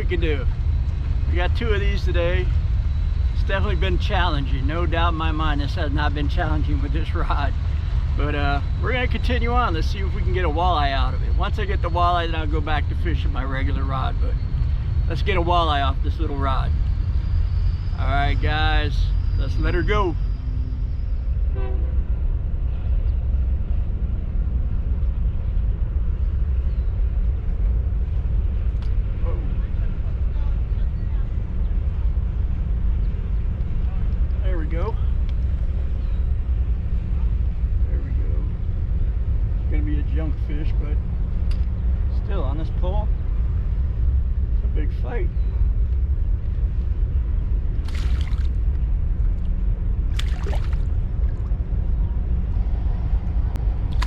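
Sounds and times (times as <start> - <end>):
steady low rumble: 0.0 - 54.0
wind buffeting microphone: 0.0 - 54.0
fish splashing in water: 47.8 - 48.6, 50.1 - 51.4.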